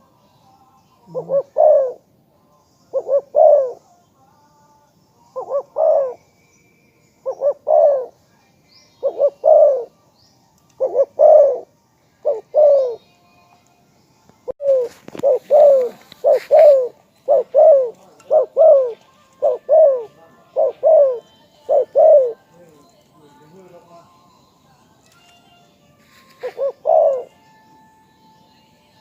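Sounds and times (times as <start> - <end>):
small birds chirping: 0.0 - 29.0
dove cooing: 1.0 - 2.1, 2.9 - 3.9, 5.3 - 6.2, 7.2 - 8.2, 9.0 - 9.9, 10.8 - 13.0, 14.6 - 22.8, 26.3 - 27.5.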